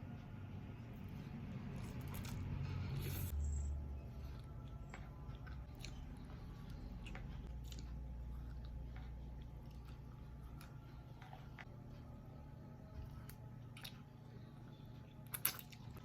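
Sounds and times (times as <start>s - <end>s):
low steady hum: 0.0s - 16.0s
person biting and chewing food: 1.6s - 3.4s, 4.3s - 11.6s.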